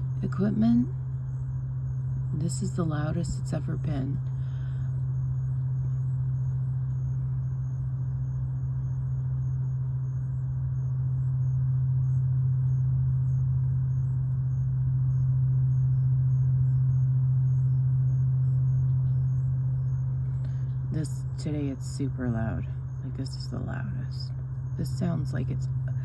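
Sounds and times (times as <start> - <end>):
low-pitched hum: 0.0 - 26.0.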